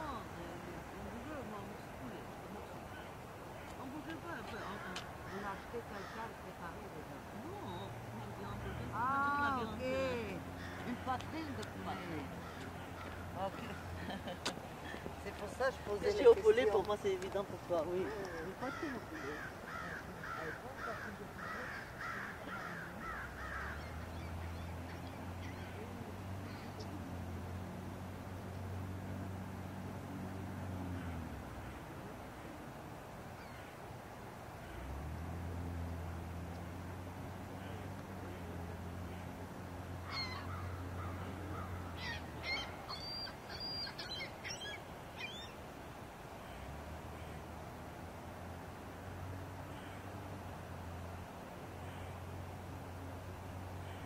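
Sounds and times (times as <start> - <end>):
bird harsh calls: 10.5 - 14.1, 18.1 - 26.9, 40.0 - 45.6
bird short calls: 40.0 - 45.6.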